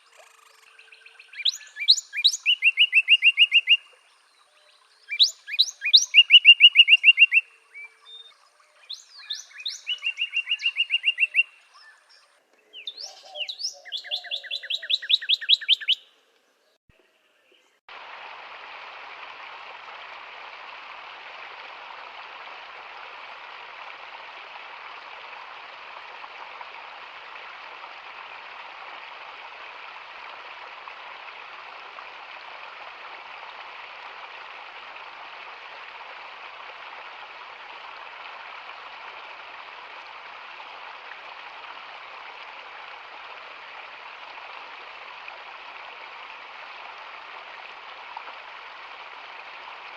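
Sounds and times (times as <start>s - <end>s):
steady water hiss: 0.0s - 14.8s, 16.1s - 49.9s
songbird trilling: 0.1s - 3.9s, 5.1s - 8.3s, 8.9s - 16.1s.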